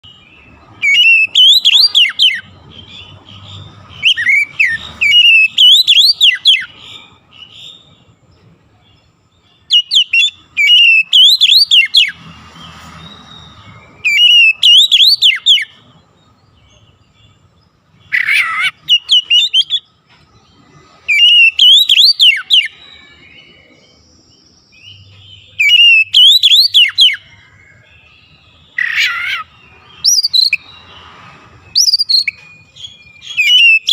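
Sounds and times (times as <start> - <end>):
songbird singing shrill whistles: 0.0 - 8.1, 8.7 - 20.0, 20.6 - 33.9.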